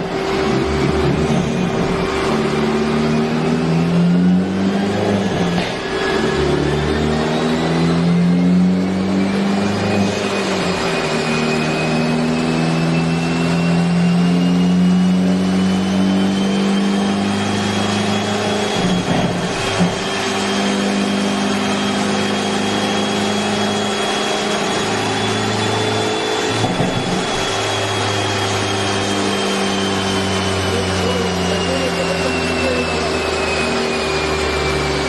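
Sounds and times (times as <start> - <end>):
high whine rising in pitch: 0.0 - 35.0.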